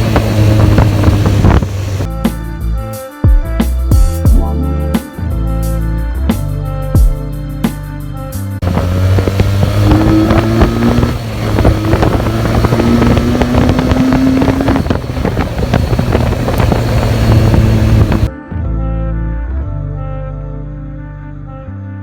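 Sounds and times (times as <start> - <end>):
motorcycle engine revving: 0.0 - 2.1, 8.6 - 18.3
wind noise on microphone: 0.0 - 2.1, 8.6 - 18.3.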